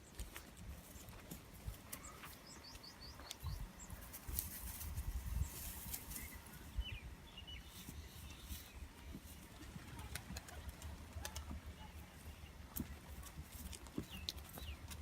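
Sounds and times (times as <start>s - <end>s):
small bird chirping: 1.9s - 9.2s.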